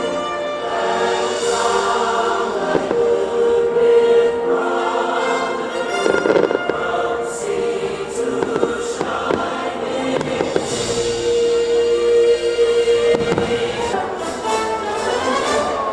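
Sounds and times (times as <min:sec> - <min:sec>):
choir music over loudspeakers: 0:00.0 - 0:15.9
firework bangs and crackling: 0:01.1 - 0:03.6, 0:05.8 - 0:12.1, 0:13.0 - 0:14.6.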